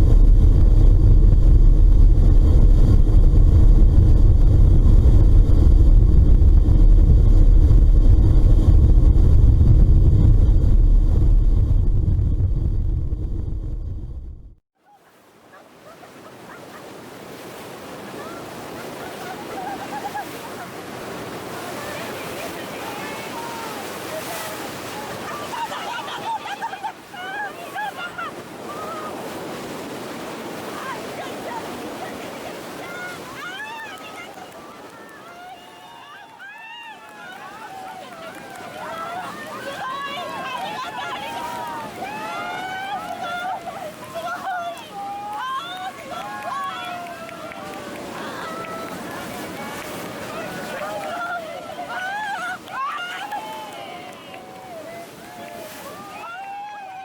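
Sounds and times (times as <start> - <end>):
sea water rushing and splashing: 0.0 - 12.7, 15.0 - 57.0
ferry engine drone: 0.0 - 14.6
wind rumble on microphone: 0.0 - 14.6
people's voices: 30.6 - 57.0.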